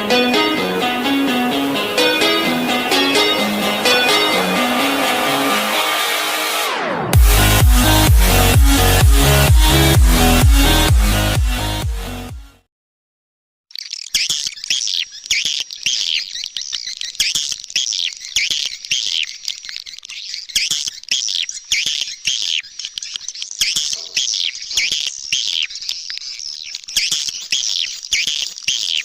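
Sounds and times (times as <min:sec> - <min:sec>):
swiftlets twittering: 0:13.7 - 0:29.0.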